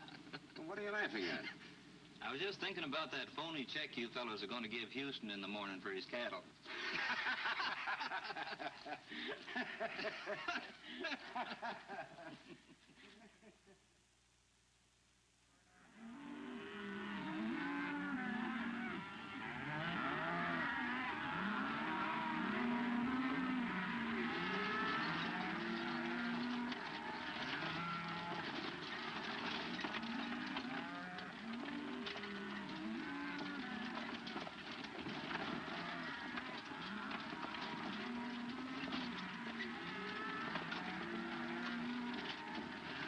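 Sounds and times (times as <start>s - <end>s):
cattle mooing: 15.8s - 43.0s.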